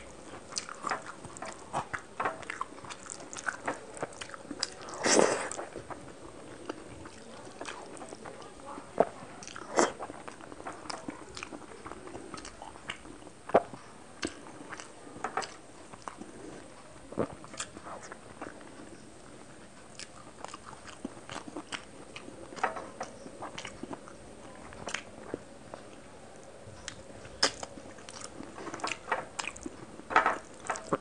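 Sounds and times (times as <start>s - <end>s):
person chewing and mouth smacking: 0.0s - 26.0s, 26.8s - 31.0s
lip smacks and clicks: 26.8s - 29.7s.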